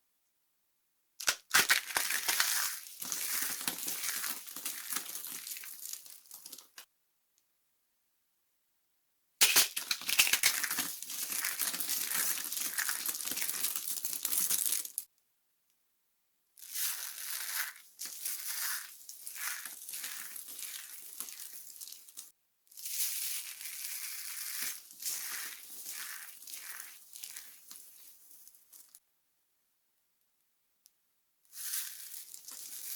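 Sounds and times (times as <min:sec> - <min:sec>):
dry soap crackling and crumbling: 0:01.2 - 0:06.9, 0:09.4 - 0:15.1, 0:16.6 - 0:29.0, 0:31.5 - 0:32.9.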